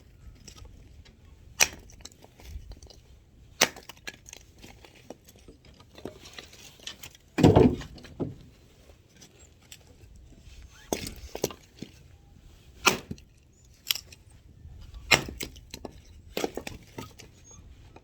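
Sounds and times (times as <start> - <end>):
axe striking firewood: 1.6 - 2.0, 3.6 - 4.2, 7.4 - 8.4, 12.8 - 13.2, 15.0 - 17.1.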